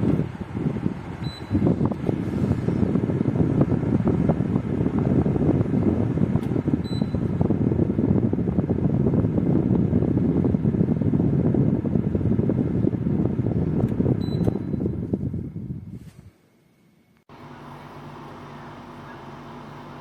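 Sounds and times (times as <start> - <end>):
dehumidifier fan blowing: 0.0 - 20.0
short electronic beeps: 14.2 - 14.8.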